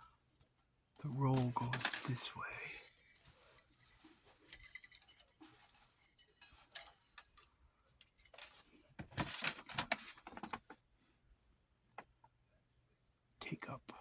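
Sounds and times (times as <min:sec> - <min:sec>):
clicks and rustles of handling film: 0:00.4 - 0:10.8.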